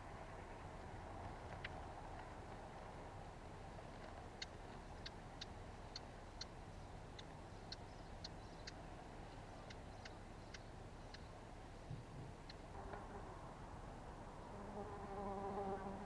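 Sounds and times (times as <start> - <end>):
songbird ticking calls: 4.3 - 13.0.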